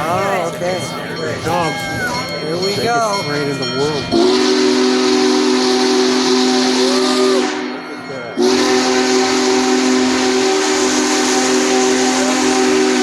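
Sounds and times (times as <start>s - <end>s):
steam whistle blowing: 4.1s - 13.0s.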